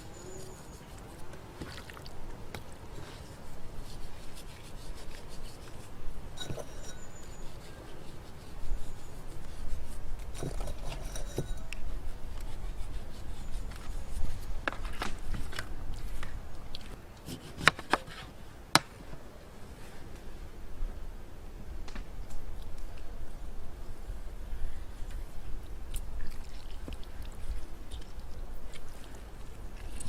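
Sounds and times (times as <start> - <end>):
knocks clicks and scraping: 10.2 - 11.8.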